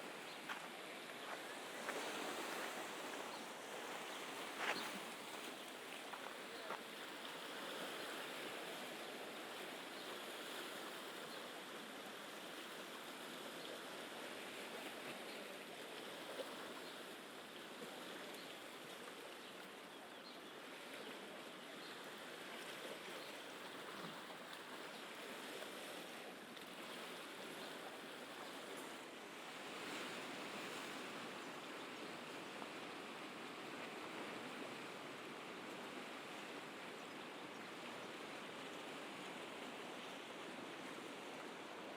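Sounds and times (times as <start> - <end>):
sea waves on shore: 0.0 - 20.0, 20.6 - 41.9.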